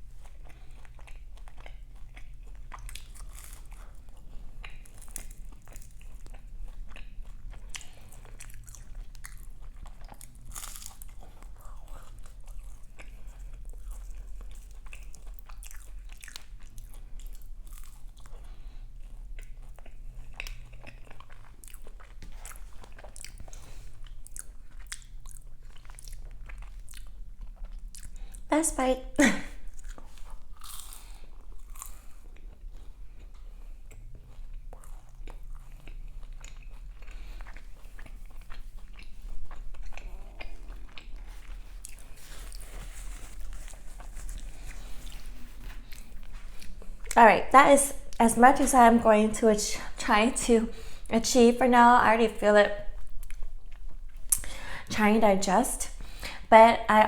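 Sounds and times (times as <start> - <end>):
crunching flaky pastry: 0.0 - 28.5, 29.6 - 47.2
low steady hum: 0.0 - 57.0.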